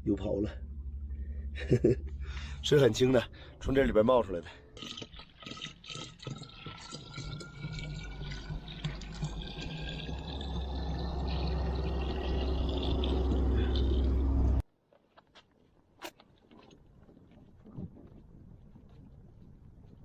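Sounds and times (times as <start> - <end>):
water pouring into bucket: 4.8 - 14.1.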